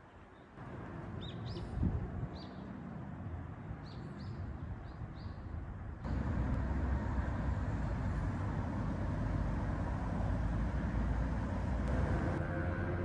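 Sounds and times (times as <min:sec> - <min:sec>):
low outdoor rumble: 0:05.7 - 0:13.0.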